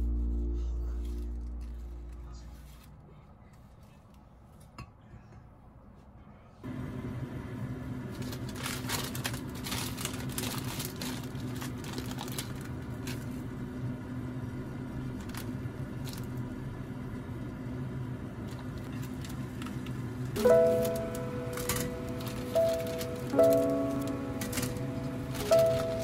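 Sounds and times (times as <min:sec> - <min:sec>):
music: 0:00.0 - 0:02.9, 0:20.4 - 0:26.0
steady low hum: 0:00.0 - 0:26.0
plastic packaging crinkling: 0:08.1 - 0:13.4, 0:15.1 - 0:16.4, 0:18.4 - 0:26.0.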